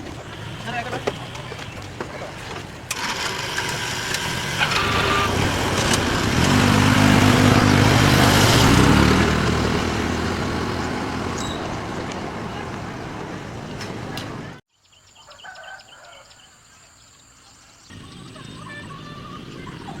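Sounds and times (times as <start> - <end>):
vehicle engine passing: 0.0 - 14.6.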